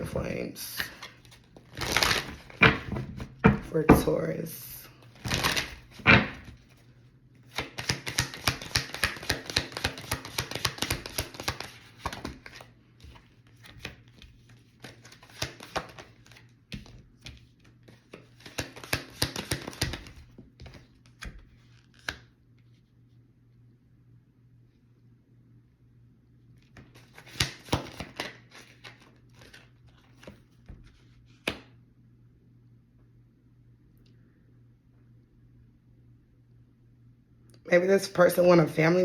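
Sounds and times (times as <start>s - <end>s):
cards being shuffled: 0.8s - 4.2s, 5.0s - 6.8s, 7.4s - 22.3s, 26.6s - 31.7s.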